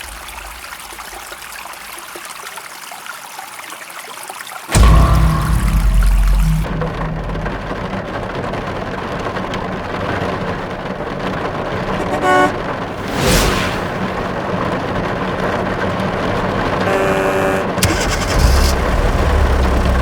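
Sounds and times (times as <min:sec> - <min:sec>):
horn toot: 0:11.9 - 0:12.7, 0:16.8 - 0:18.8
short whoosh: 0:13.0 - 0:14.2
truck engine running: 0:14.4 - 0:20.0.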